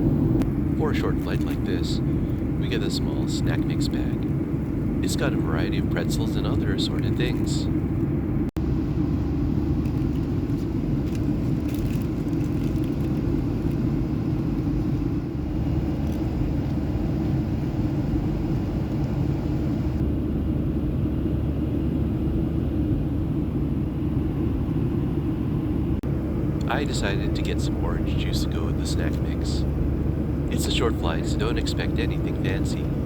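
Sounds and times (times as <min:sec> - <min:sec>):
airplane cabin rumble in flight: 0:00.0 - 0:33.0.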